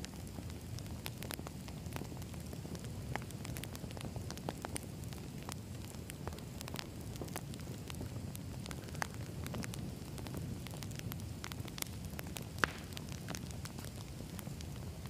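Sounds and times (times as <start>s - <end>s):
campfire flames rumbling: 0.0s - 15.0s
fire crackling and popping: 0.0s - 15.0s.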